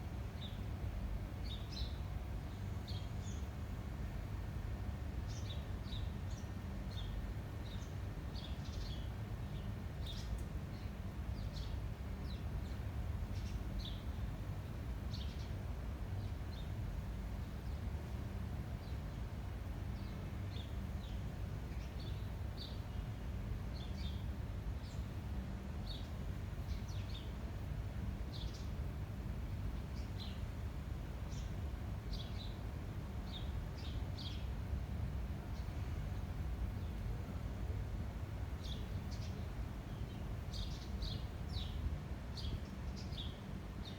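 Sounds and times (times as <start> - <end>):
small birds chirping: 5.2 - 15.6, 25.8 - 34.6, 35.3 - 37.1, 38.5 - 43.9.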